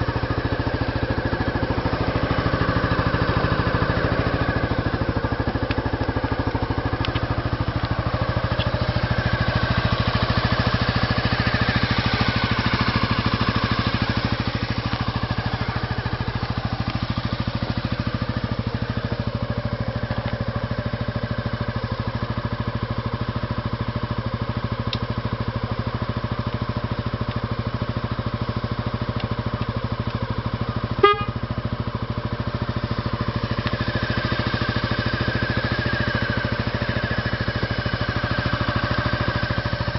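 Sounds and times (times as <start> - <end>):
scooter engine idling: 0.0 - 39.9
engine throttle blip: 30.9 - 31.6.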